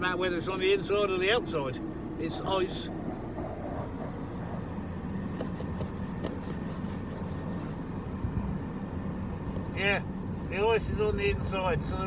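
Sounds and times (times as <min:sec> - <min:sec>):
van engine rumble: 0:00.0 - 0:12.0
heater blower air rushing: 0:09.2 - 0:12.0.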